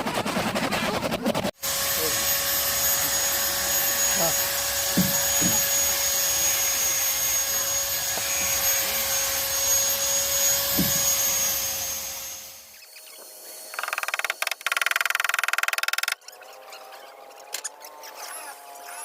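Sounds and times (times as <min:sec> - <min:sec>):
power tool motor whining: 0:01.6 - 0:16.8.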